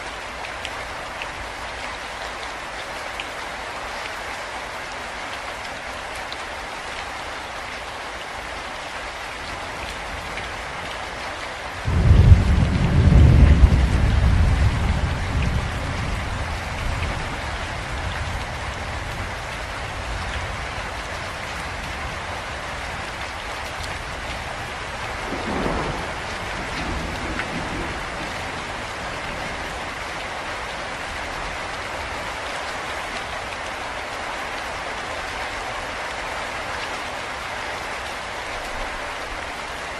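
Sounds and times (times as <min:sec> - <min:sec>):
rain falling: 0:00.0 - 0:39.9
thunder clap and rumble: 0:11.9 - 0:20.8, 0:23.8 - 0:30.0.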